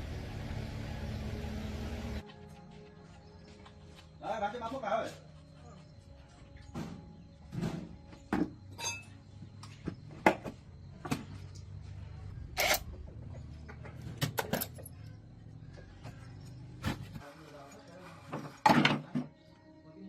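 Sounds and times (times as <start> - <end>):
tools and metal parts clicking: 12.5 - 13.0, 13.8 - 15.2.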